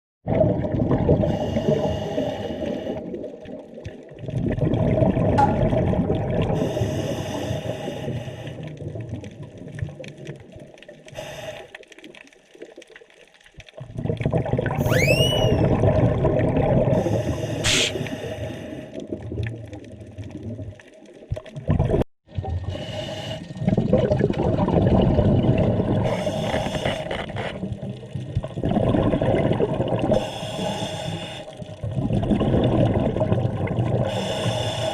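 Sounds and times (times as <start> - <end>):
exhaled bubbles rumbling underwater: 0.3 - 34.9
rising squeak: 14.8 - 15.8
regulator hissing inhalations: 17.2 - 18.8.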